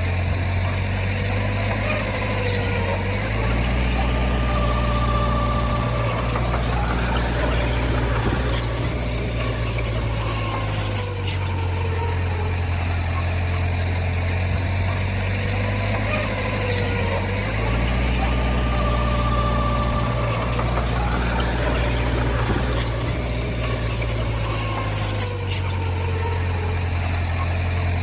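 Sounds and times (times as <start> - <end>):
heavy diesel engine droning: 0.0 - 28.0.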